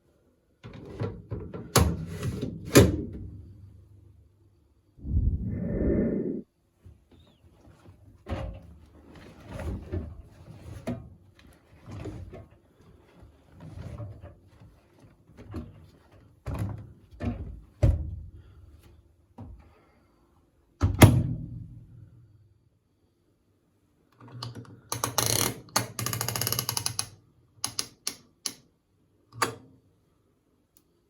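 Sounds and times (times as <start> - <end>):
faint steady hum: 5.0 - 6.4.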